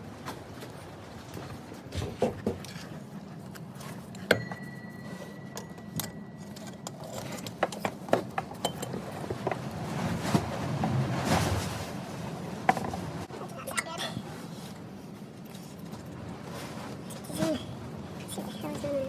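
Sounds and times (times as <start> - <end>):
metal tools clinking and knocking: 4.2 - 9.1
ringing metal strike: 4.3 - 7.4.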